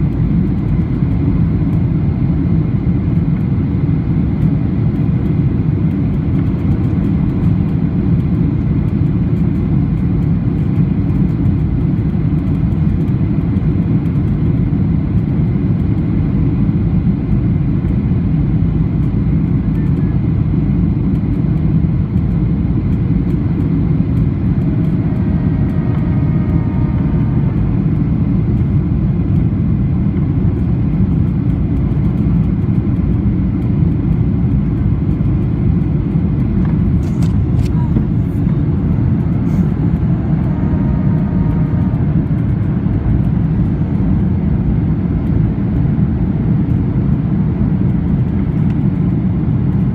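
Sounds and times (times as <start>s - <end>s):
airplane cabin engine rumble: 0.0s - 49.9s
rushing airflow: 35.2s - 45.4s.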